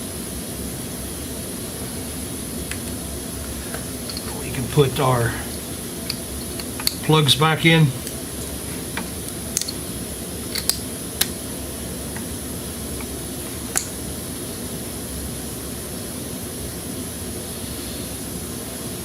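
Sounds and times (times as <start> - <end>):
whooshing fan drone: 0.0 - 19.0
plastic connector clicks: 9.0 - 9.8, 10.5 - 11.3.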